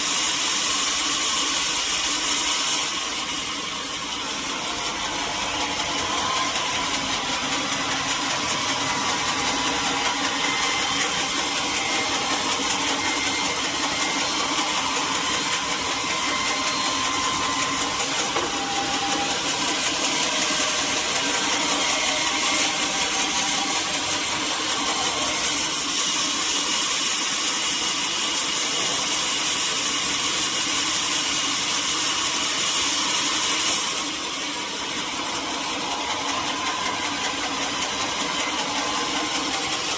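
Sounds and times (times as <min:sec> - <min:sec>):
sawmill machinery running: 0:00.0 - 0:39.9
strong mechanical hiss: 0:00.0 - 0:39.9.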